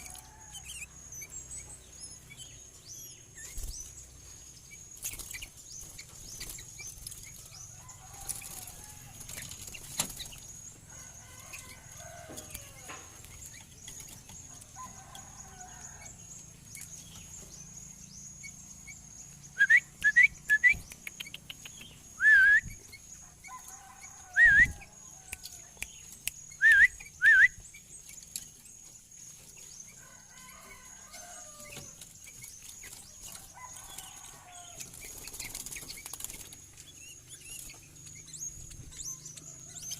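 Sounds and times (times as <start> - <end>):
bird whistling song: 19.5 - 23.0, 24.4 - 24.8, 26.5 - 27.8.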